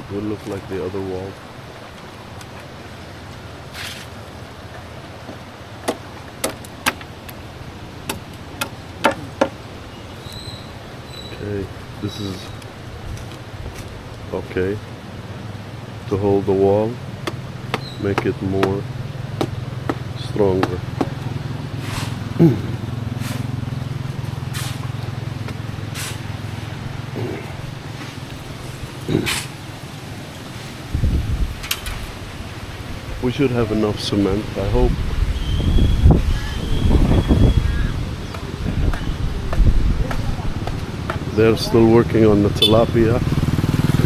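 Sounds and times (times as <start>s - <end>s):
sharp knocks of hand tools: 8.1s - 9.6s, 17.2s - 21.3s
short swishes: 21.8s - 23.5s, 24.5s - 24.9s, 25.9s - 26.3s, 29.1s - 29.6s.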